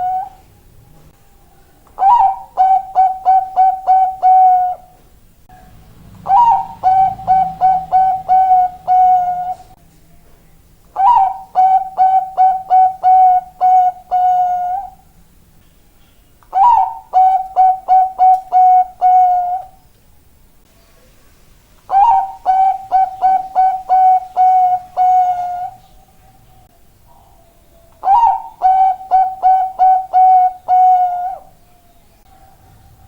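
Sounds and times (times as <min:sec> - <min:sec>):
dove cooing: 0:00.0 - 0:00.4, 0:02.0 - 0:05.0, 0:06.2 - 0:09.8, 0:11.0 - 0:15.1, 0:16.5 - 0:19.8, 0:21.9 - 0:26.4, 0:27.1 - 0:31.6.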